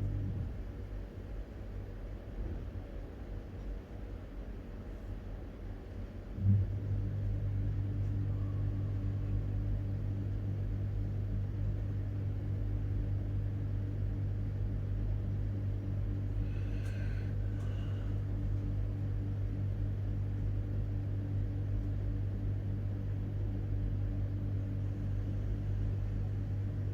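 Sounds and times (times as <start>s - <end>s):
low mechanical hum: 0.0s - 26.9s.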